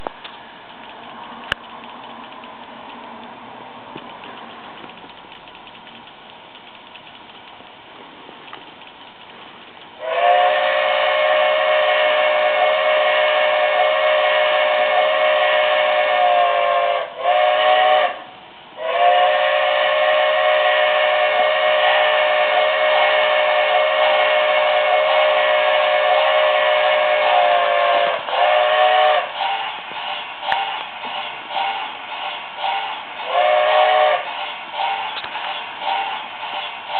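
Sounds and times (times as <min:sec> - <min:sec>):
model train steam whistle chord: 0:10.0 - 0:29.8, 0:31.5 - 0:31.9, 0:32.6 - 0:35.2.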